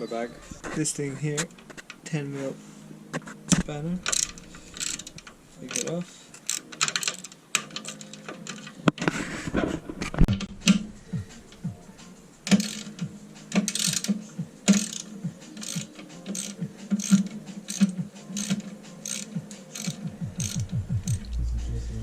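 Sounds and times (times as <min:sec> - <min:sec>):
ratcheting spanner clicking: 0:03.6 - 0:09.1, 0:12.4 - 0:21.3.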